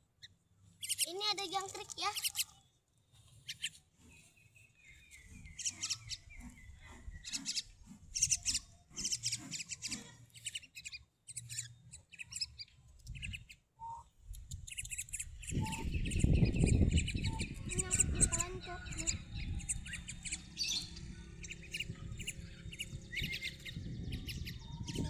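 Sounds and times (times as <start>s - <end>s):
bird chirping: 0.2s - 25.0s
thin held whistle: 13.8s - 14.1s.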